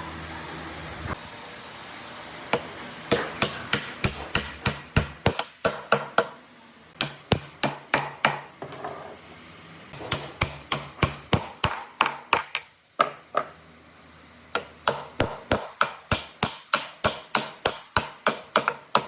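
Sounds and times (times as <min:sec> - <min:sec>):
machine hum: 0:00.0 - 0:05.3.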